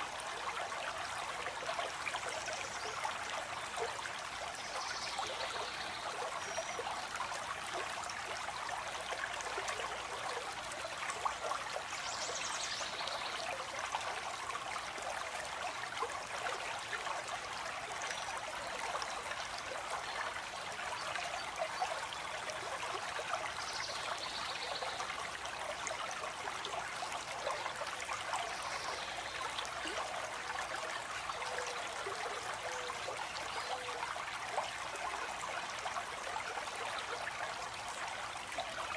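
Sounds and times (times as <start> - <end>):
stream of water flowing: 0.0 - 38.9.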